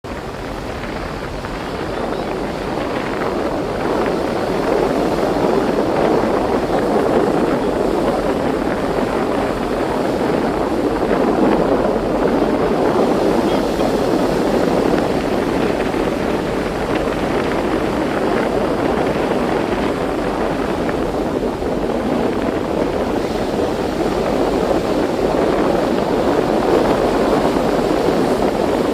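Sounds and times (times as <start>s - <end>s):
sea water rushing: 0.0s - 28.9s
wind: 0.0s - 28.9s.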